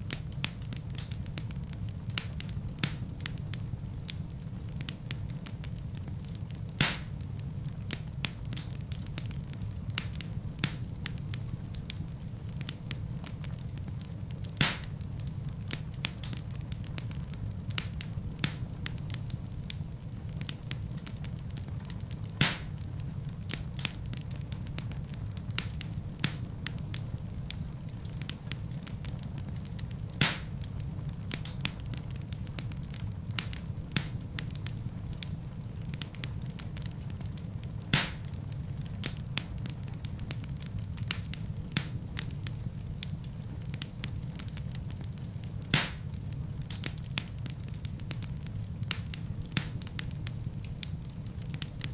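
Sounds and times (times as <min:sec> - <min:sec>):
fire crackling: 0:00.0 - 0:51.9
sharp pop from fire: 0:06.8 - 0:07.2, 0:14.5 - 0:15.0, 0:21.8 - 0:22.8, 0:30.1 - 0:30.7, 0:33.4 - 0:34.5, 0:37.8 - 0:38.3, 0:45.7 - 0:47.8.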